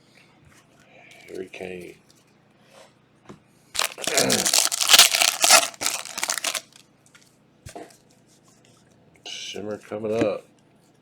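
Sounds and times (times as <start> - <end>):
plastic foil wrapper crinkling: 3.8 - 6.8.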